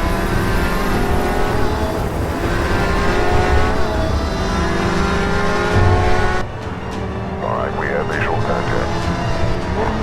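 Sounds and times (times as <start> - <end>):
car engine revving high: 0.1 - 6.4.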